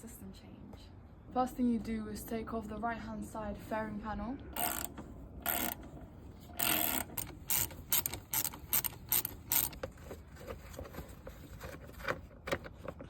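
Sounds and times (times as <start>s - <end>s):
ratchet wrench clicking: 4.6s - 5.8s, 6.6s - 9.8s.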